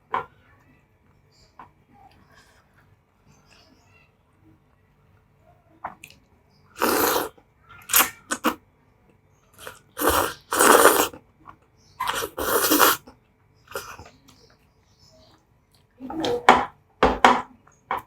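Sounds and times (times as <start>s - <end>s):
person slurping noodles: 6.8s - 7.3s, 7.9s - 8.6s, 9.6s - 11.2s, 12.0s - 13.1s, 13.7s - 14.0s.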